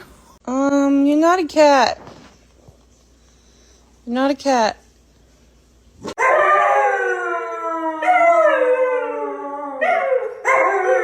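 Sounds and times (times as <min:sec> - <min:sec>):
dog howling: 0:06.2 - 0:11.0.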